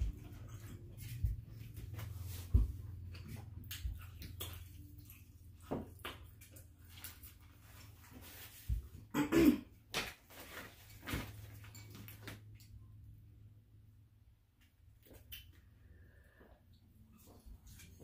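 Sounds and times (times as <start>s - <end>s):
chewing and smacking: 0.0s - 8.3s
steady low hum: 0.0s - 9.3s.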